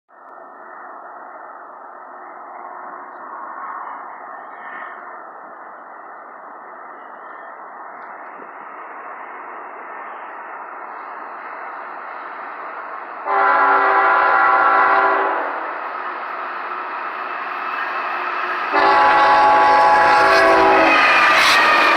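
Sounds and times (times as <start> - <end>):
freight train rumble: 0.1 - 21.9
locomotive air horn chord: 13.2 - 15.6, 18.7 - 21.9.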